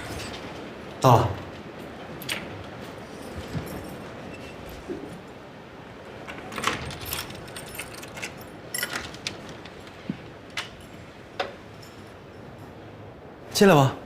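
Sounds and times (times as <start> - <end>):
keys jangling: 3.0 - 4.5, 6.3 - 12.8
door being unlocked: 6.2 - 10.8.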